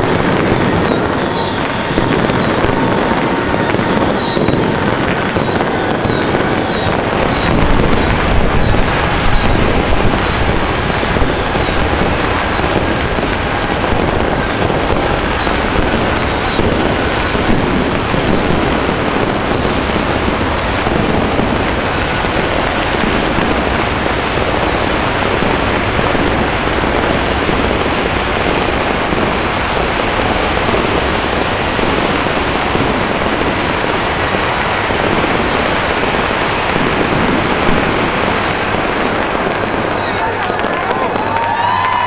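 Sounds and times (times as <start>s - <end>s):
firecrackers crackling: 0.0s - 42.0s.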